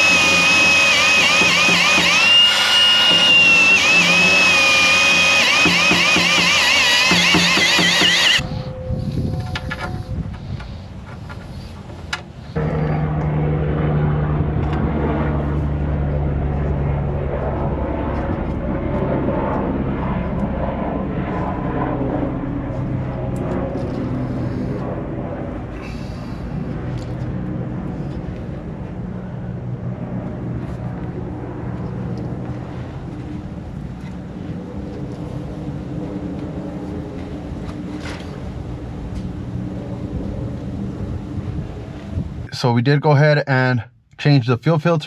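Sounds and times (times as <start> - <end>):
motor droning: 0.0 - 10.7.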